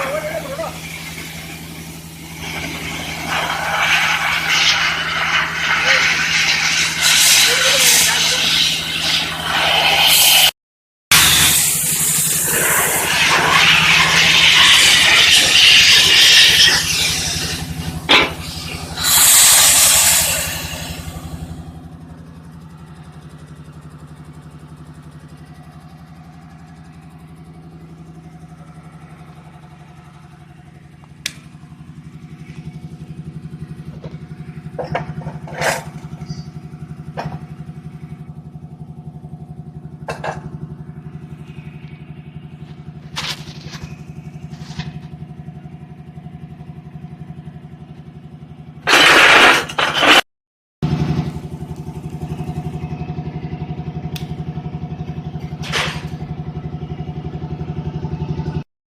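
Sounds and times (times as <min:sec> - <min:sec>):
air compressor running: 0:00.0 - 0:50.2, 0:50.8 - 0:58.6
loud air rushing burst: 0:00.7 - 0:10.5, 0:11.1 - 0:21.8.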